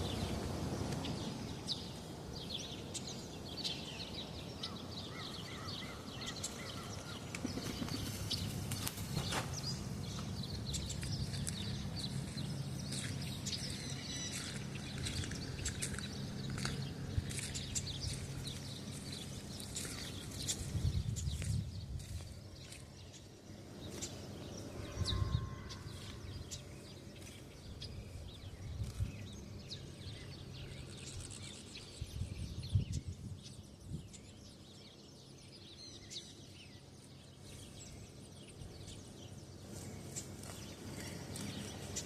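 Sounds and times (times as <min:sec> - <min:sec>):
small birds chirping: 0:00.0 - 0:42.0
steady low rumble: 0:06.0 - 0:35.5.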